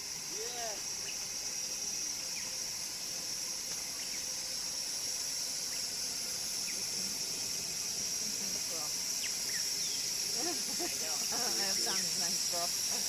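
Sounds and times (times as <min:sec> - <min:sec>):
high-pitched insect chorus: 0:00.0 - 0:13.0
faint bird chirps: 0:03.8 - 0:04.3, 0:09.2 - 0:10.2.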